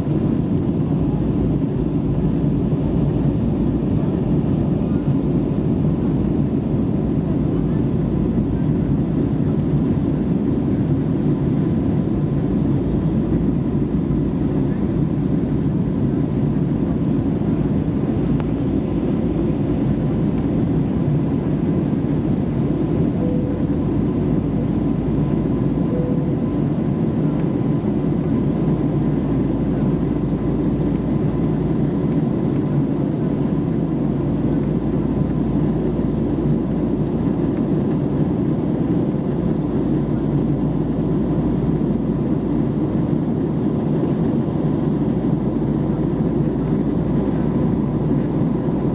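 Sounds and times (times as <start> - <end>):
jet engine and airflow rush: 0.0 - 48.9
faint steady whine: 16.2 - 44.4.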